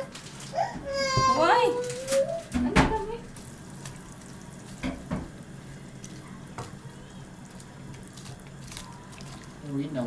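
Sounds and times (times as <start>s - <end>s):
tap water running into sink: 2.6s - 5.4s.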